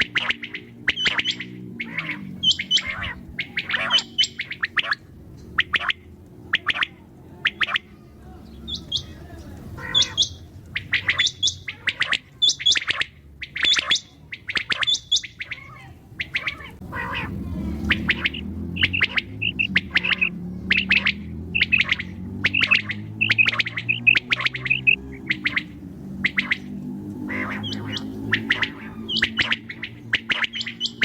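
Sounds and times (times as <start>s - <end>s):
quail calling: 0.0s - 31.0s
steady low hum: 0.0s - 31.0s.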